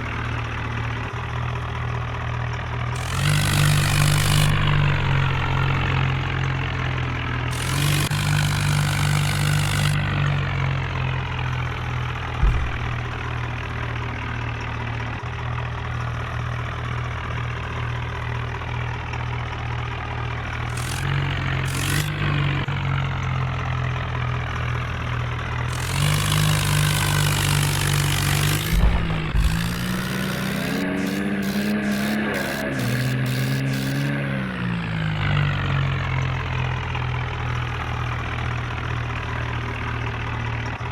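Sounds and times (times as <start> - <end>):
tractor diesel engine idling and revving: 0.0 - 40.9
short thump: 3.5 - 6.0, 12.4 - 13.7, 26.9 - 34.1.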